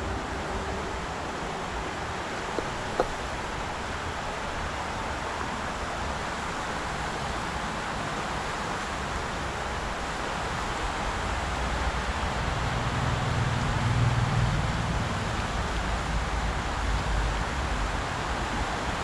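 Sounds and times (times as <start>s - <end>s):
river water rushing: 0.0s - 12.7s.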